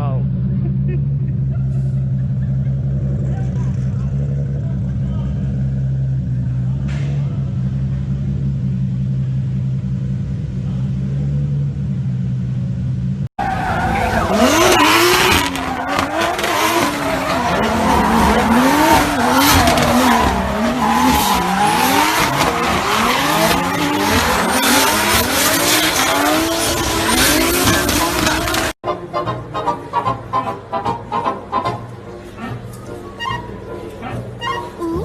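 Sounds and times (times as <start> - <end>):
turbocharged car engine revving: 0.0 - 28.8
tyres squealing: 13.4 - 28.8, 32.4 - 35.0.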